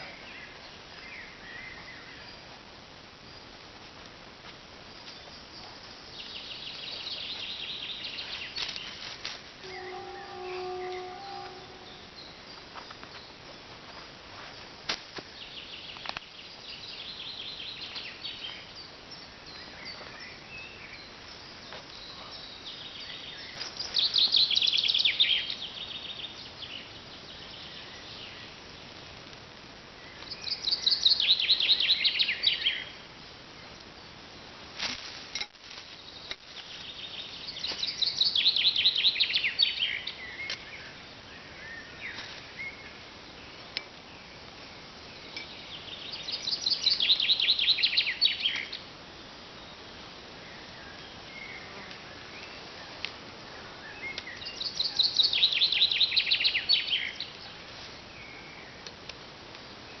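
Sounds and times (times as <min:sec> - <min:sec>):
outdoor background noise: 0:00.0 - 1:00.0
songbird trilling: 0:53.8 - 0:57.4.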